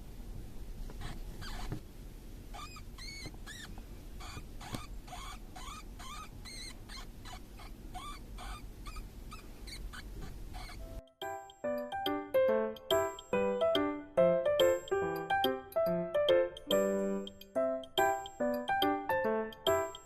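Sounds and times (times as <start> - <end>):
hamster pups squeaking: 0.9 - 1.8, 2.5 - 11.9, 16.5 - 20.0.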